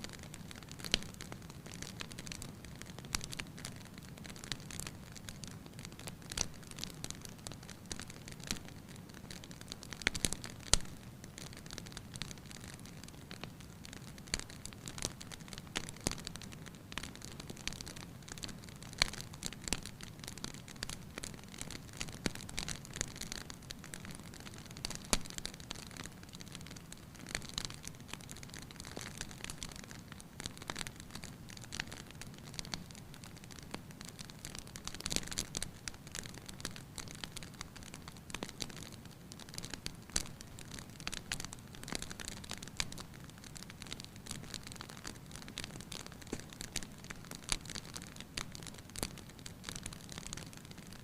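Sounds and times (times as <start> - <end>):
wood fire crackling: 0.0 - 51.0.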